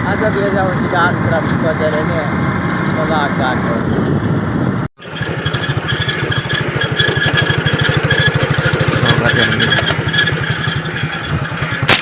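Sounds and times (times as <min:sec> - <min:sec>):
motorcycle engine putter: 0:05.0 - 0:12.0.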